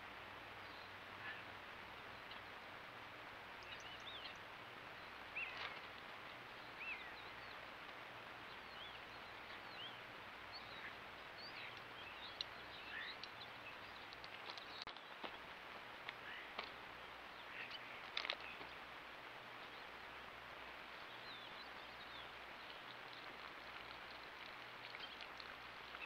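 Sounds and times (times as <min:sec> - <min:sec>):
steady background hiss: 0:00.0 - 0:26.0
small birds chirping and whistling: 0:03.6 - 0:05.9, 0:06.6 - 0:07.7, 0:08.4 - 0:15.4, 0:17.3 - 0:18.8, 0:20.9 - 0:26.0.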